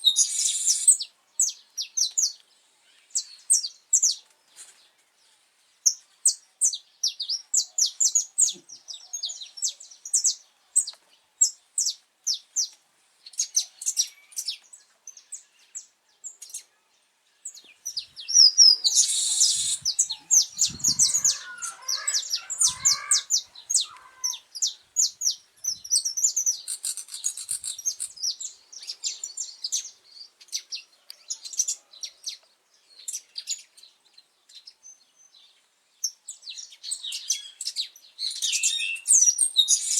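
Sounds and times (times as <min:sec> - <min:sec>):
finch chirping rapidly: 0:18.2 - 0:29.0.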